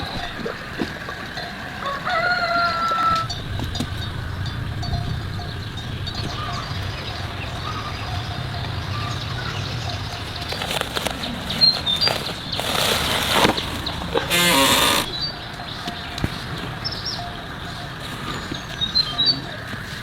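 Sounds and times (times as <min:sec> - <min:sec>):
rooster crowing: 0:01.8 - 0:03.3.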